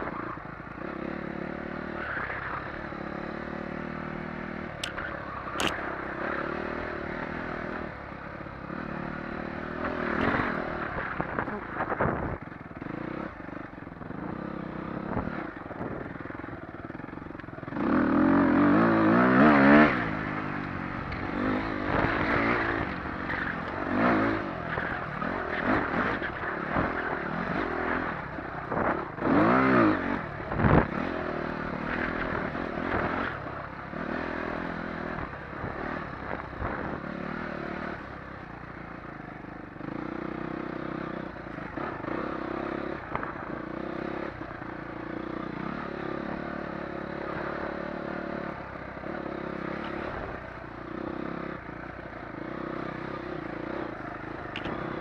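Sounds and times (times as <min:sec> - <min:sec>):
dirt bike engine revving: 0:08.6 - 0:13.4, 0:17.7 - 0:38.0, 0:39.8 - 0:55.0.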